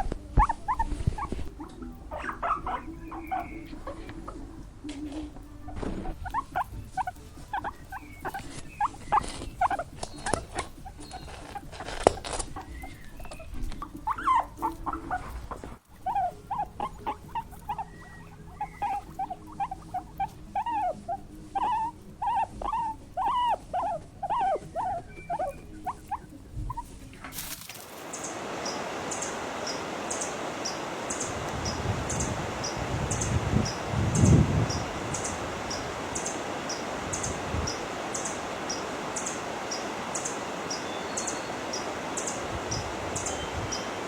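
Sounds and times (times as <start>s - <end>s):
small animal squeaking: 0.0s - 44.0s.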